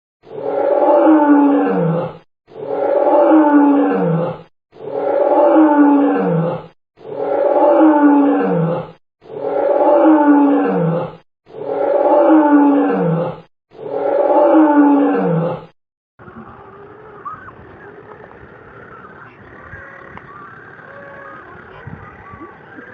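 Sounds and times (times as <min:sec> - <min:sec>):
big cat roaring: 0:00.3 - 0:15.8
faint chirps: 0:16.2 - 0:22.9.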